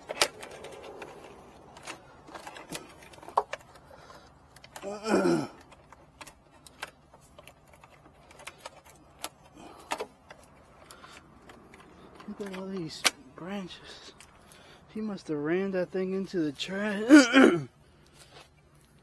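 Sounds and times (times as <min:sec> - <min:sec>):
light clicks and taps: 0:05.6 - 0:14.7.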